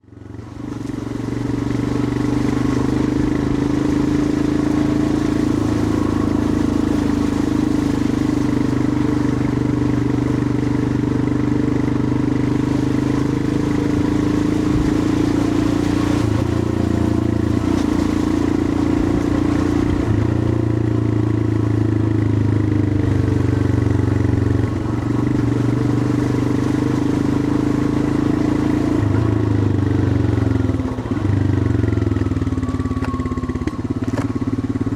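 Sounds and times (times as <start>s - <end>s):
motorcycle engine thumping: 30.2s - 34.9s.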